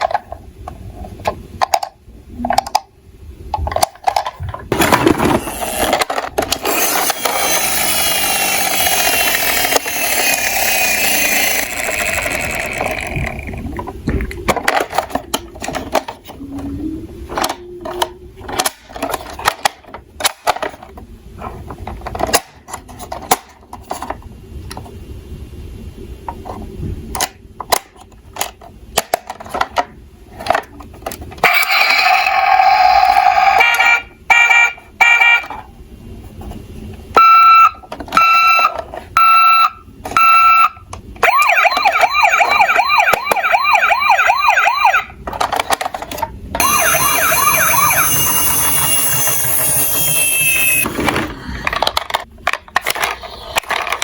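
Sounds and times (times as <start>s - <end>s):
plastic toy vehicles clattering: 0.0s - 2.9s, 3.5s - 25.0s, 26.3s - 34.0s, 37.8s - 39.2s, 45.0s - 50.0s, 50.6s - 54.0s
electronic siren sounds: 31.4s - 35.5s, 37.2s - 45.2s, 46.6s - 50.9s.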